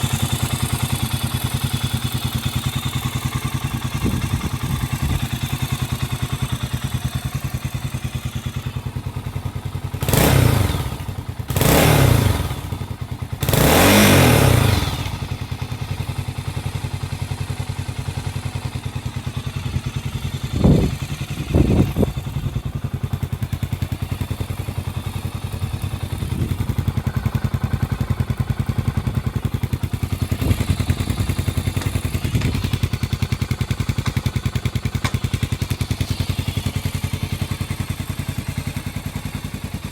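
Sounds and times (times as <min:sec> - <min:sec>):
motorcycle engine idling: 0:00.0 - 0:39.9
motorcycle engine revving: 0:00.0 - 0:39.9.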